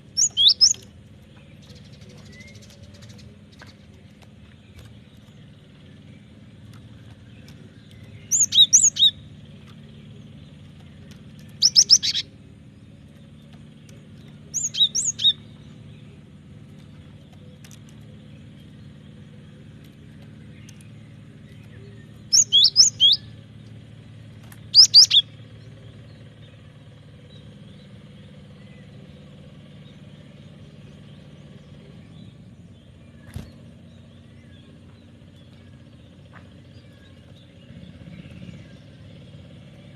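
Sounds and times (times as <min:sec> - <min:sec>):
steady low hum: 0:00.0 - 0:39.9
bird singing high sharp notes: 0:00.1 - 0:00.8, 0:08.0 - 0:09.3, 0:11.5 - 0:12.4, 0:14.5 - 0:15.6, 0:21.6 - 0:23.4, 0:24.6 - 0:25.4.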